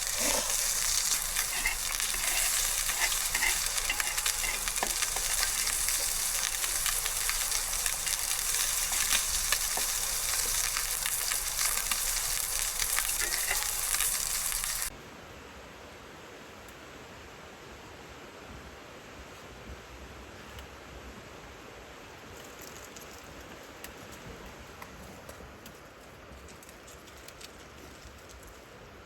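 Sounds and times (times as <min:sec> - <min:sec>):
food sizzling in a frying pan: 0:00.0 - 0:14.9.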